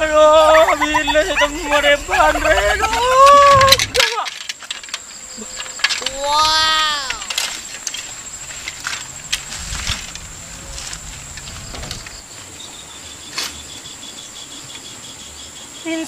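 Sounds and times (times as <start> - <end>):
cricket trilling: 0.0 - 16.0
insects buzzing: 0.0 - 16.0
bicycle clicking and rattling: 2.4 - 12.3.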